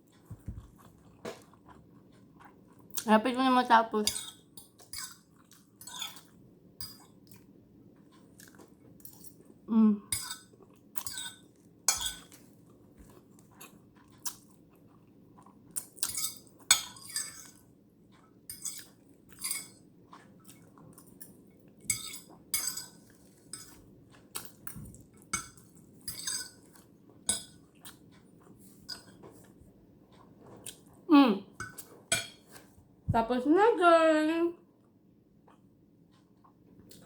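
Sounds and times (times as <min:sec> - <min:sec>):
chewing: 0:00.0 - 0:03.1, 0:04.1 - 0:09.6, 0:10.2 - 0:31.0.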